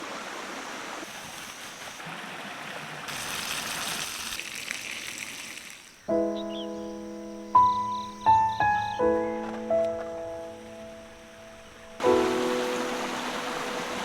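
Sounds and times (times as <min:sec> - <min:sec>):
music with held chord: 0:06.2 - 0:14.0
steady rushing outdoor noise: 0:10.2 - 0:14.0.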